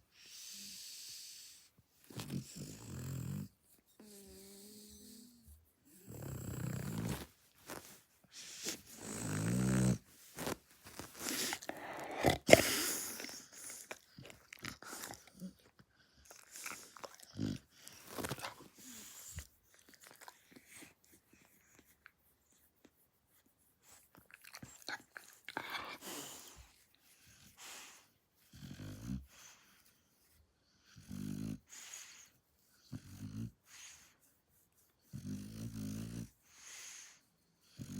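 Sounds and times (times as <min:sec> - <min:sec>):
dog snoring: 0:00.4 - 0:05.4, 0:06.0 - 0:07.3, 0:08.6 - 0:10.0, 0:28.5 - 0:29.3, 0:30.9 - 0:31.7, 0:32.9 - 0:33.6, 0:35.1 - 0:36.4, 0:37.6 - 0:37.9.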